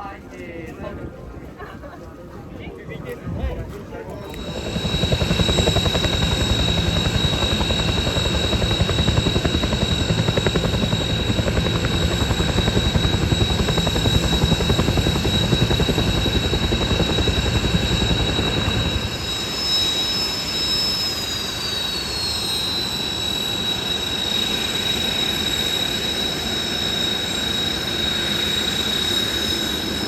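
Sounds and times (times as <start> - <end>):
turbine whine: 3.4 - 30.0
helicopter rotor beat: 3.8 - 30.0.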